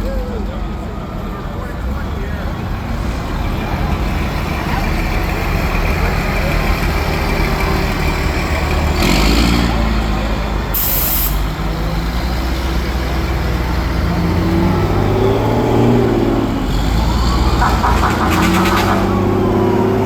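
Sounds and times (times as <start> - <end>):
fire truck engines running: 0.0 - 20.0
air brake hisses: 10.8 - 11.5.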